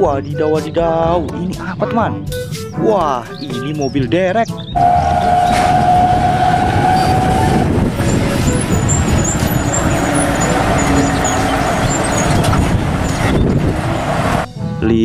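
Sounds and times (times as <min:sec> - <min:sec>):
heavy truck driving past: 0:04.8 - 0:14.5
steady high tone: 0:04.8 - 0:14.5.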